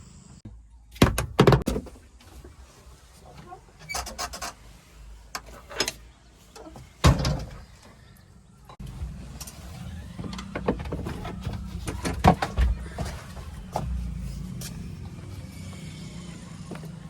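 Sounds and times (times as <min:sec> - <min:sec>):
knocks and clanks: 0:09.4 - 0:15.2.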